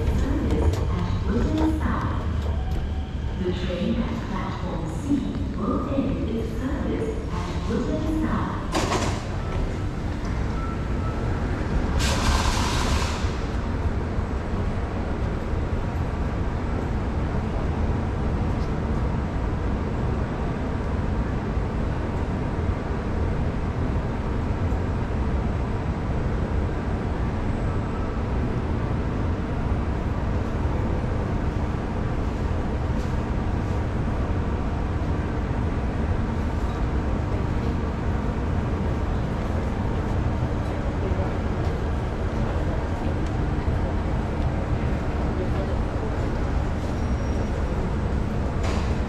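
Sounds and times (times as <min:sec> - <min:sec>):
train machinery hum and rumble: 0:00.0 - 0:49.0.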